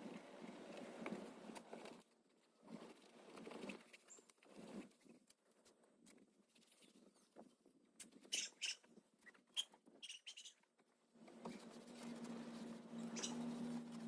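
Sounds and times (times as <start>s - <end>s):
short high squeaks: 13.0s - 14.0s.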